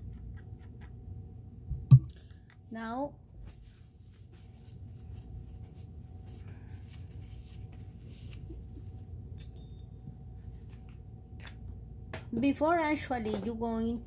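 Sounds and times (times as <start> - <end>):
metallic clink: 9.3 - 10.0.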